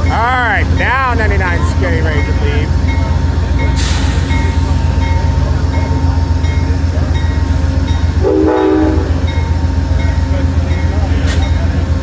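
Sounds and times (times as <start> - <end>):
diesel locomotive idling: 0.0 - 12.0
train horn blast: 8.2 - 9.2.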